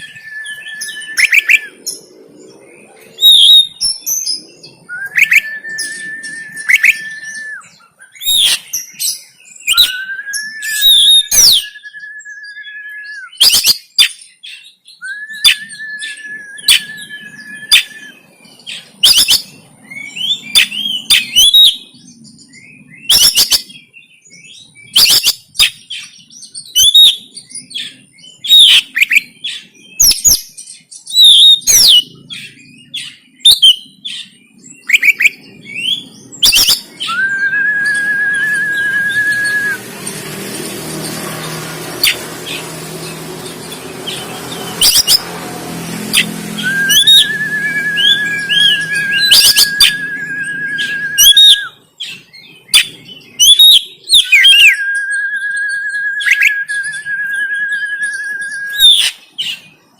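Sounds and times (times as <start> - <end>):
long even bird whistles: 0.0 - 2.1, 3.2 - 45.4, 46.0 - 59.6
bird singing sharp chips and whistles: 0.0 - 59.8
steady rushing noise: 35.4 - 51.3.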